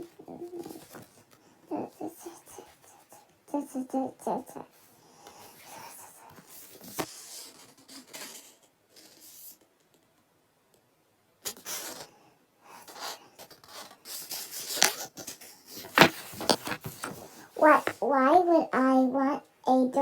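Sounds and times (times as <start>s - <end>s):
rubbing and scratching handling: 0.0s - 3.7s, 4.7s - 9.4s, 12.8s - 18.1s.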